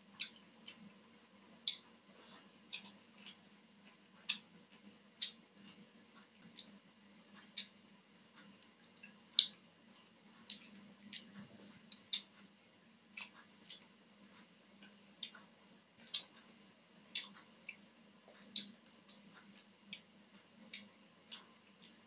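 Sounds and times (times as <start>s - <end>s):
faint steady hum: 0.0s - 22.0s
wet mouth clicks and smacks: 17.1s - 17.8s.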